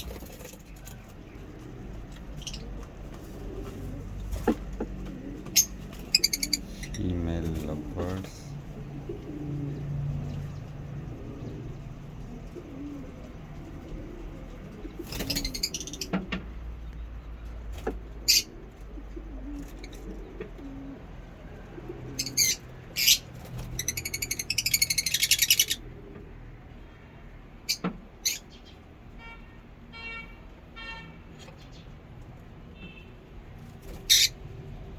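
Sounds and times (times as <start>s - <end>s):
lovebirds chirping: 0.0s - 2.8s, 5.2s - 8.2s, 14.8s - 16.1s, 18.2s - 18.6s, 22.1s - 25.8s, 27.7s - 28.8s.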